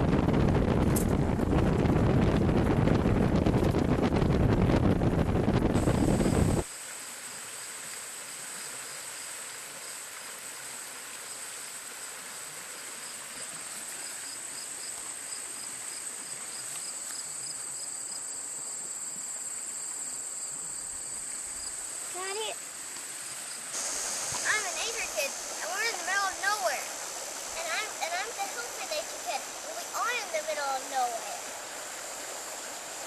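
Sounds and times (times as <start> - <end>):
wind buffeting microphone: 0.0 - 6.7
high-pitched insect chorus: 6.0 - 25.8.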